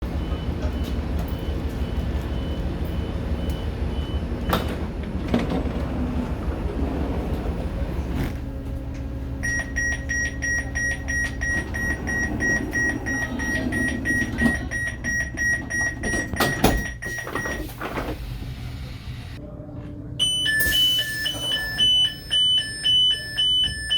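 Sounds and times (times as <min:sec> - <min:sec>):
higher door warning beeps: 0:00.2 - 0:04.9, 0:09.4 - 0:18.1, 0:20.2 - 0:23.9
fast repeating door beep: 0:09.4 - 0:17.7, 0:20.2 - 0:23.9.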